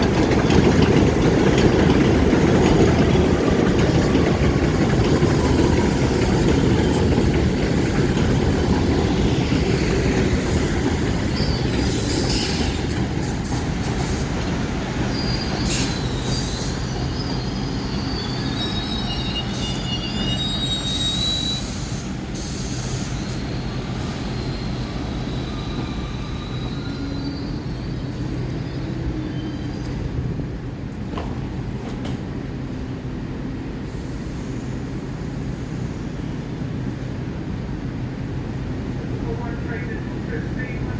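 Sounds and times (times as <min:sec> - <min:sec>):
subway train rumble: 0:00.0 - 0:40.9
high wheel squeals: 0:09.1 - 0:14.4, 0:15.0 - 0:29.9.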